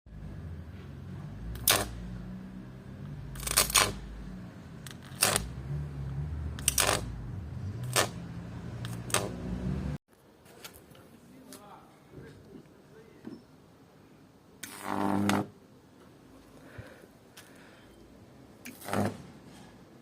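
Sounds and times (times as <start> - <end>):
high-voltage arcs crackling: 1.5 - 2.0, 3.3 - 4.1, 4.8 - 5.6, 6.6 - 9.6, 14.6 - 15.6, 18.6 - 19.3.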